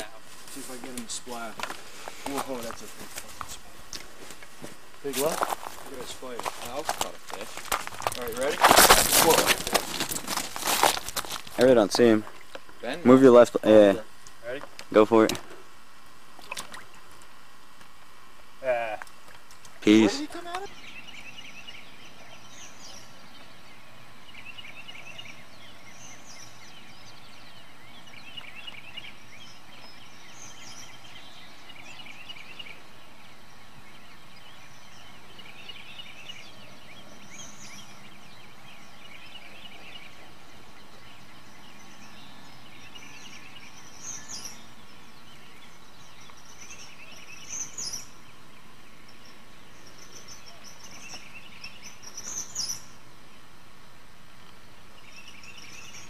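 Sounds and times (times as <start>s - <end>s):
birds chirping: 0.0s - 56.0s
steady background hiss: 0.0s - 56.0s.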